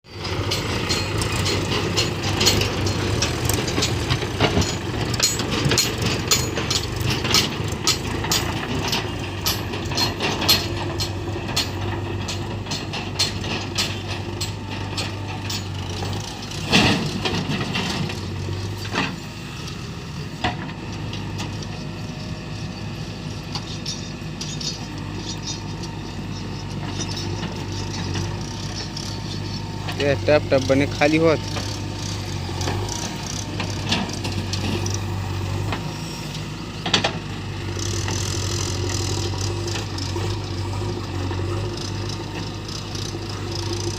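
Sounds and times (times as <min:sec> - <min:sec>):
diesel engine running: 0:00.0 - 0:43.9
knocks and clatter: 0:00.2 - 0:19.2.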